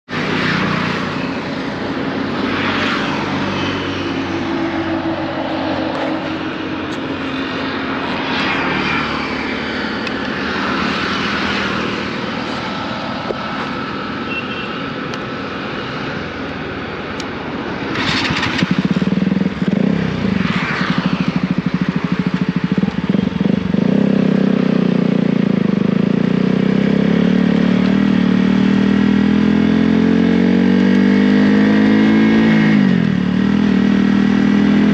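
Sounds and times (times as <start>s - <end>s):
motorcycle engine revving: 17.7s - 34.9s.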